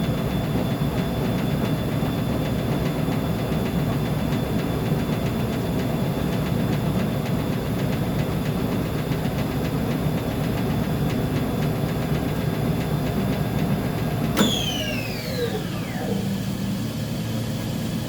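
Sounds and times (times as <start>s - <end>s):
washing machine rumbling: 5.4s - 18.0s.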